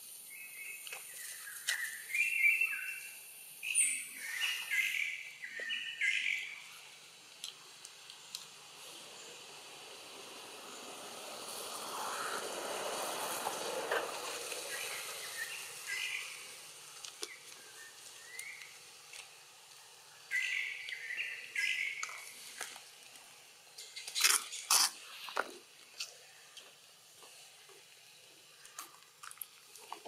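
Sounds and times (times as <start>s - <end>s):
hiss: 6.5s - 26.0s.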